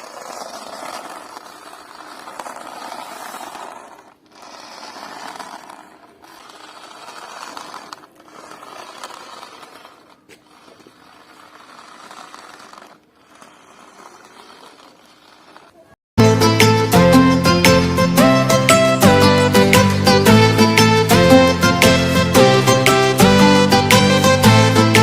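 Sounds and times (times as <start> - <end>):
small motor whirring: 0.0 - 16.0.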